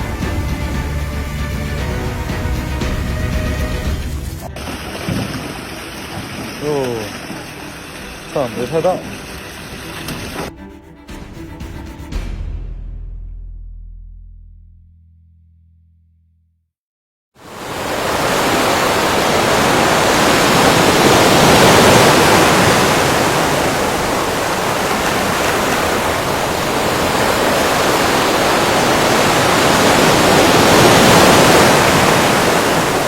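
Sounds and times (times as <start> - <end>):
loud steady rushing noise: 17.4 - 33.0.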